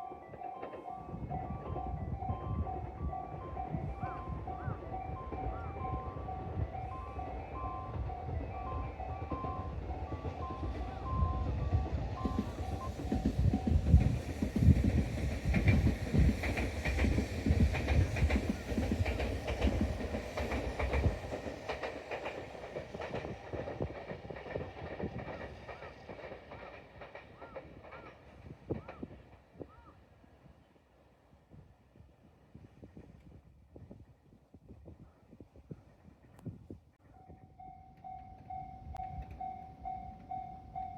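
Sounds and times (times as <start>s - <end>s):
train wheel squeals: 3.2s - 26.8s
train wheels clattering over rail joints: 9.2s - 29.2s.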